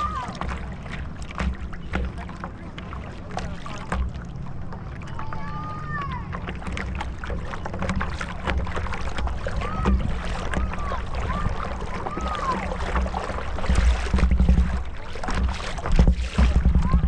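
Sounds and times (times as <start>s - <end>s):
water splashing against boat hull: 0.0s - 17.0s
wind rumble on microphone: 6.1s - 17.0s.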